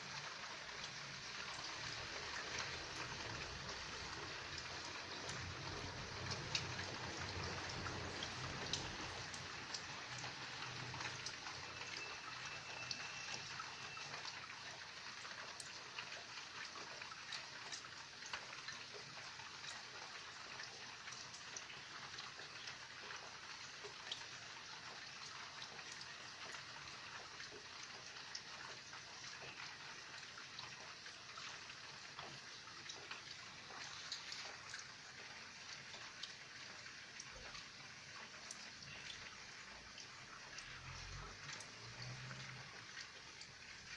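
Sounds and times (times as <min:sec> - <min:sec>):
steady rain hiss: 0:00.0 - 0:14.4, 0:31.2 - 0:43.9.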